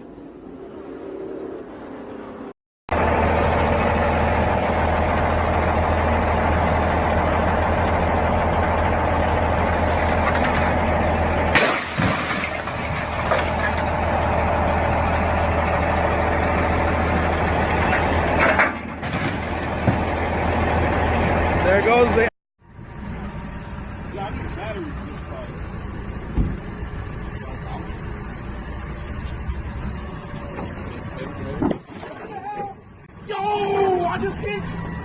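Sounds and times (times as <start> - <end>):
large vehicle engine idling: 2.9 - 11.6, 13.0 - 18.4.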